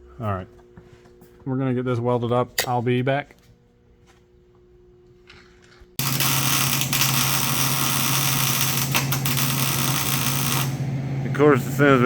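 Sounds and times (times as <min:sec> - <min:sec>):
welding arc hissing: 0:06.0 - 0:10.8.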